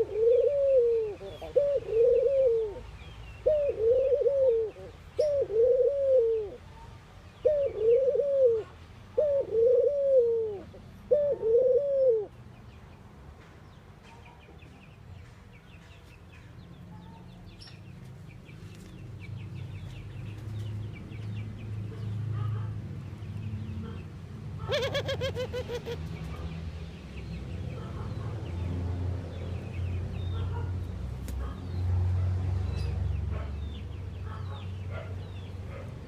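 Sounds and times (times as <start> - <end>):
dove cooing: 0.0 - 6.7, 7.4 - 12.4, 24.6 - 26.1.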